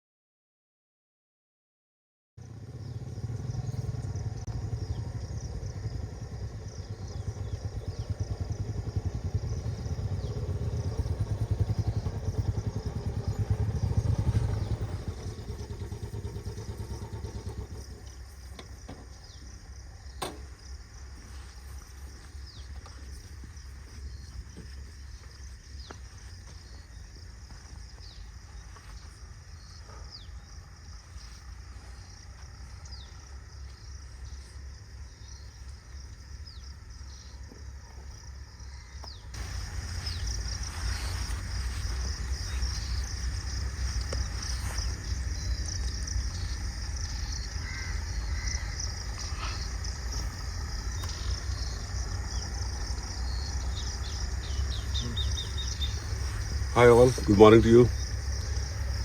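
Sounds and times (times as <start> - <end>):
insects chirping: 2.4 - 59.0
steady low rumble: 2.6 - 59.0
short bird calls: 54.0 - 56.2.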